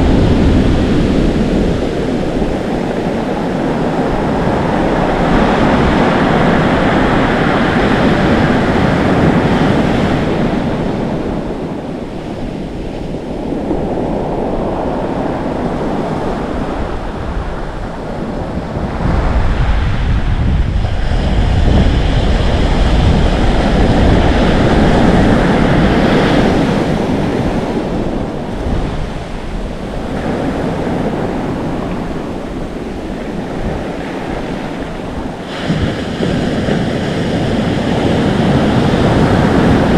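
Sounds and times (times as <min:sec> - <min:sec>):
waves breaking on shore: 0:00.0 - 0:39.9
wind buffeting microphone: 0:00.0 - 0:39.9.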